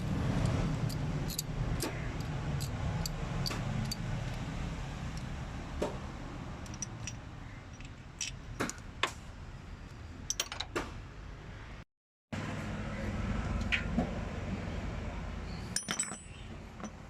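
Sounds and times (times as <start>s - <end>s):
tools clinking on metal: 0.9s - 4.0s, 15.8s - 17.0s.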